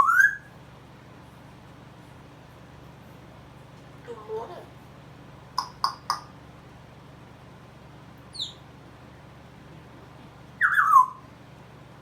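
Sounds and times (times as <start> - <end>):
parrot chirping: 0.0 - 0.5, 8.3 - 8.6, 10.6 - 11.2.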